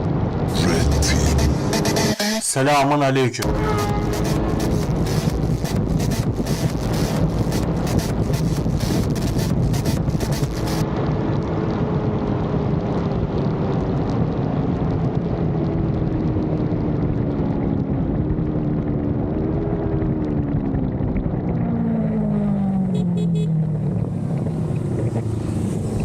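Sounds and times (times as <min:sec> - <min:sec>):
motorcycle engine running: 0:03.5 - 0:10.8
wind rush: 0:03.5 - 0:22.0.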